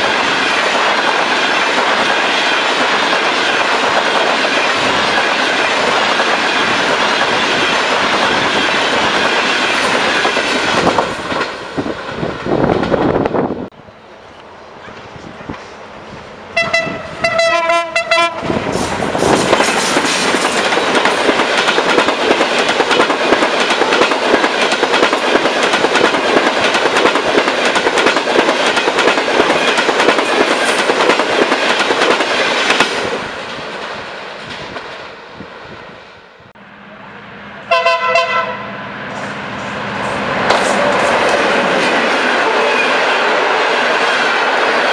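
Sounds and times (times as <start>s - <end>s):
train passing at speed: 0.0s - 44.9s
locomotive horn blasts: 16.6s - 18.5s, 37.6s - 39.2s.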